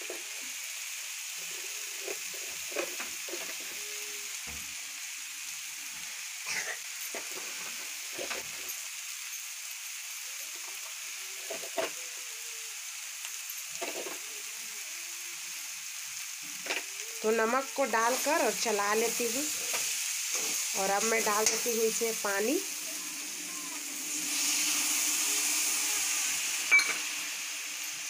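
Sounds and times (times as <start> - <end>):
vegetables sizzling in oil: 0.0 - 28.0
metal spatula scraping pan: 18.2 - 22.2.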